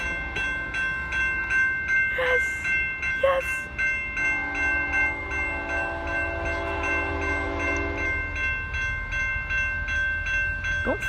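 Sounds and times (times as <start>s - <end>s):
train horn chord: 0.0s - 0.9s, 4.2s - 8.4s
bright dinging bell: 0.0s - 11.0s
train rumbling past: 0.0s - 11.0s.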